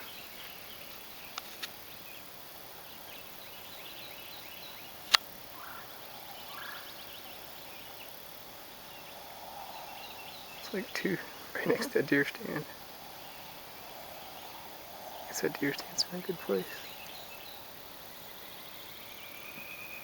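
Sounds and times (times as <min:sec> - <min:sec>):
faint bird calls: 0:02.8 - 0:20.0.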